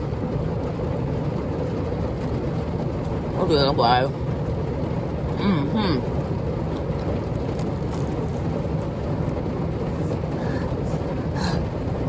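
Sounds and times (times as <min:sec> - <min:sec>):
heavy rain drumming on roof: 0:00.0 - 0:12.0.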